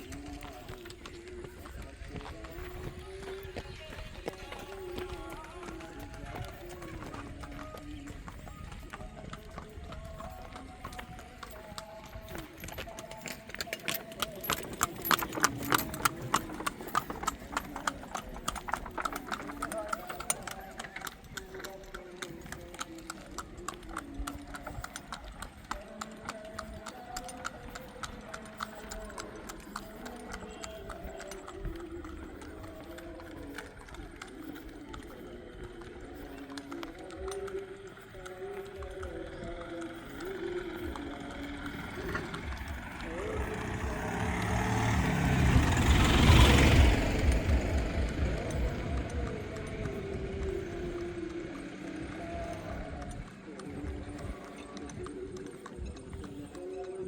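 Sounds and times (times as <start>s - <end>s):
footsteps on hard road: 0.0s - 57.0s
motor vehicle passing by: 14.0s - 23.6s, 39.6s - 56.5s.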